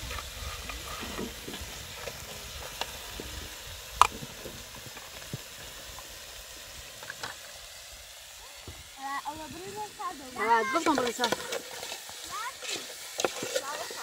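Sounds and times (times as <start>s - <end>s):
food sizzling: 0.0s - 14.0s
small pops: 3.9s - 5.4s.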